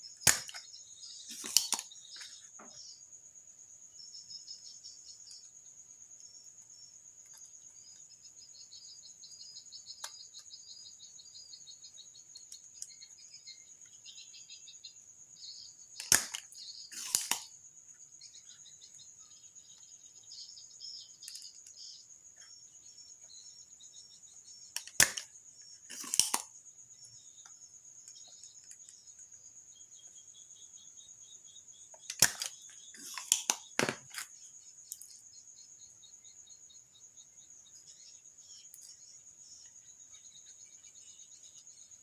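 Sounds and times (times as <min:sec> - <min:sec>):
crickets chirring: 0:00.0 - 0:42.0
desoldering pump snapping: 0:00.2 - 0:00.6, 0:24.8 - 0:25.2, 0:32.1 - 0:34.3.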